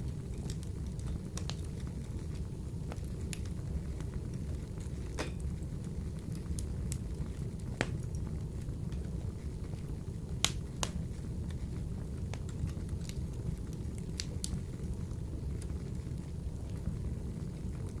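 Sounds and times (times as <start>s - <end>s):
fire crackles and pops: 0.0s - 18.0s
wood fire rumbling in stove: 0.0s - 18.0s.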